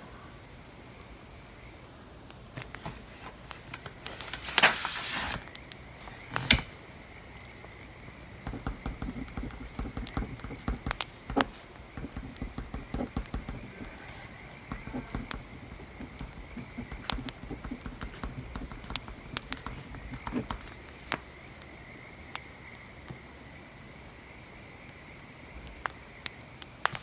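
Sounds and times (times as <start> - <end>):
paper rustling: 2.6 - 6.9, 8.4 - 21.2
pen scratching on paper: 8.4 - 21.0.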